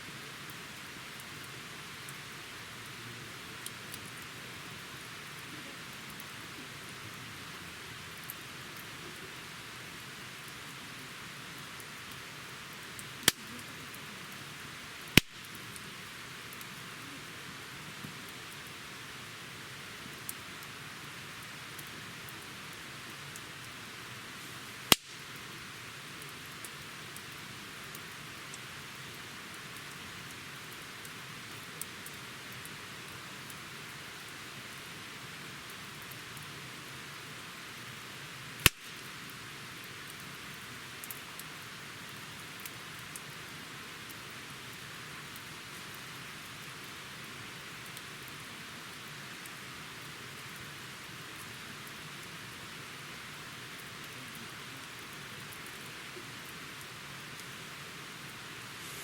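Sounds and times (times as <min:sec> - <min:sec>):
campfire hissing and crackling: 0:00.0 - 0:59.0
loud wood pops: 0:13.2 - 0:13.5, 0:24.9 - 0:25.3.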